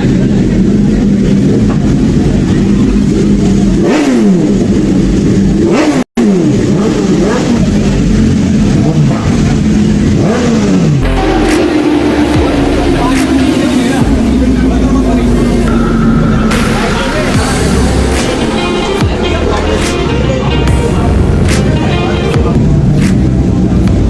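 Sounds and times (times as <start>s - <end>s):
high-performance engines revving: 0.0s - 24.0s.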